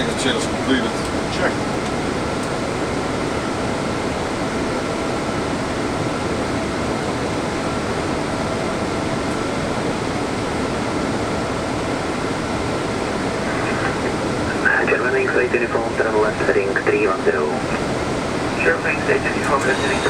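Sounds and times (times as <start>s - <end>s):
air-conditioning and airflow rush: 0.0s - 20.0s
faint steady tones: 12.0s - 20.0s.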